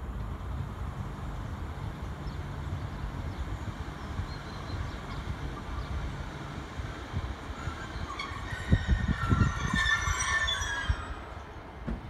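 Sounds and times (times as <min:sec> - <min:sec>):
train low rumble: 0:00.0 - 0:12.0
faint high squeaks: 0:07.6 - 0:11.3.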